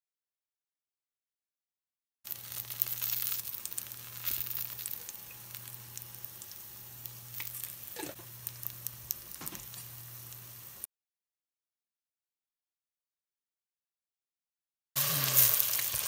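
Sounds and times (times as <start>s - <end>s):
pancake sizzling in oil: 2.3s - 10.9s, 15.0s - 16.0s.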